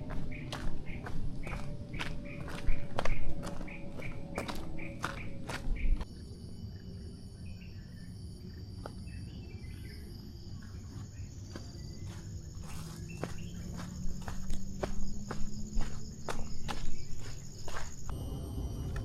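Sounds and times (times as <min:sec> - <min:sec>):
footsteps: 0:00.0 - 0:06.1, 0:10.9 - 0:18.2
insects trilling: 0:00.0 - 0:19.0
pulsing high insect call: 0:00.0 - 0:19.0
low rumble: 0:18.1 - 0:19.0.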